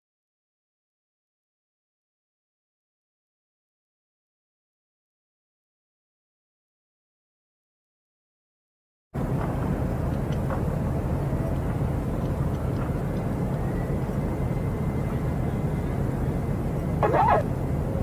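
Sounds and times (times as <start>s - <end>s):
vehicle engine and road noise: 9.2s - 18.0s
faint high whine: 14.4s - 17.6s.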